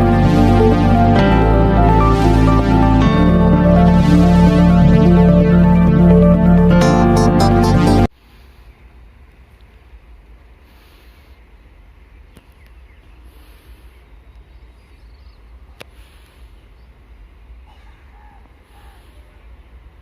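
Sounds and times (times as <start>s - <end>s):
low rumble: 0.0s - 8.1s.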